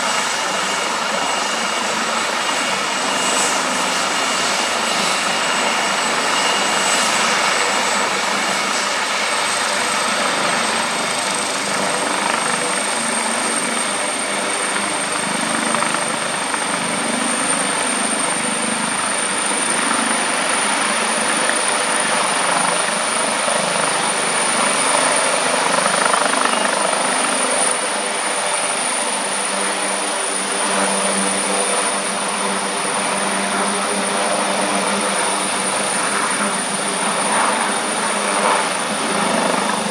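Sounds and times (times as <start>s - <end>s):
high turbine whine: 0.0s - 28.9s
helicopter engine and rotor noise: 0.0s - 39.9s.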